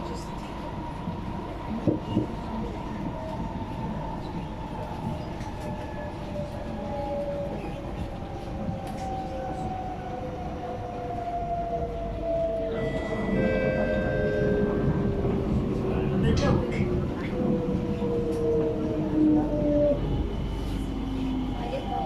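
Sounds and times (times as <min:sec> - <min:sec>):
train running noise: 0:00.0 - 0:22.0.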